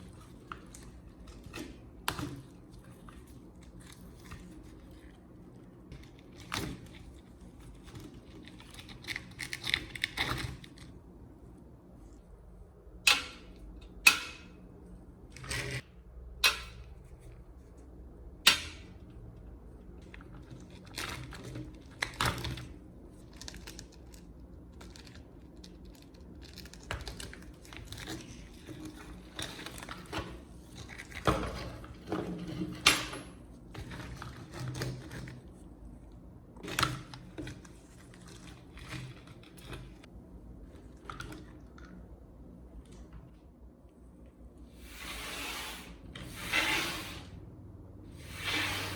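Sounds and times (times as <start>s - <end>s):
rubbing and scraping: 44.8s - 47.4s, 48.1s - 48.9s.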